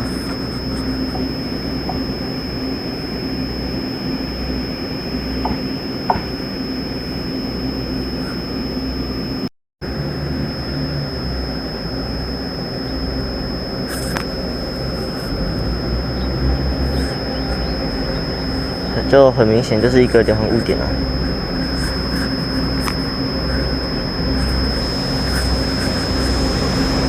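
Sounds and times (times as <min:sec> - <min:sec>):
high-pitched whine: 0:00.0 - 0:27.0
train rumbling: 0:23.8 - 0:27.0.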